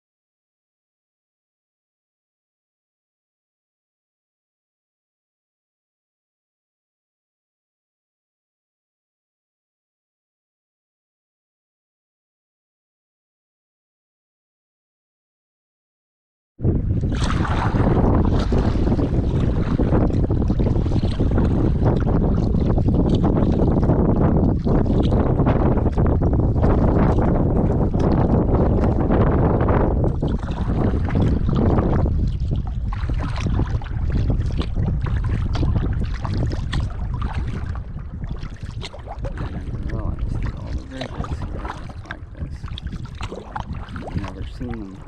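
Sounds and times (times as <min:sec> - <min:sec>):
wind buffeting microphone: 0:16.6 - 0:45.0
paddle splashing in water: 0:17.0 - 0:45.0.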